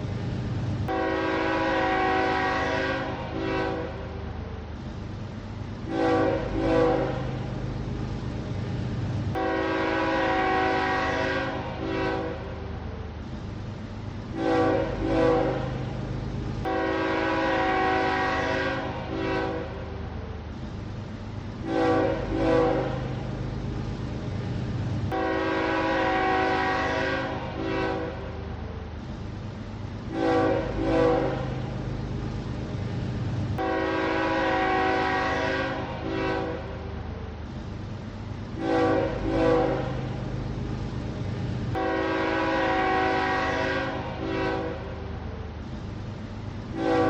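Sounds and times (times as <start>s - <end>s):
low rumble of moving train: 0.0s - 47.0s
locomotive air horn blasts: 0.9s - 4.1s, 5.9s - 7.4s, 9.4s - 12.5s, 14.3s - 15.9s, 16.6s - 19.9s, 21.6s - 23.2s, 25.1s - 28.3s, 30.1s - 31.7s, 33.6s - 36.8s, 38.6s - 40.2s, 41.7s - 45.0s, 46.7s - 47.0s.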